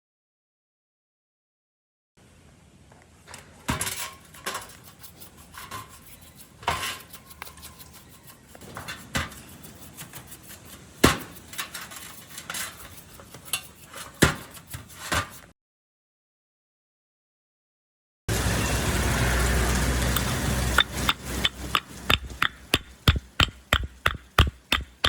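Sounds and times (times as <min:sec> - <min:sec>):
handling noise: 0:20.2 - 0:25.0.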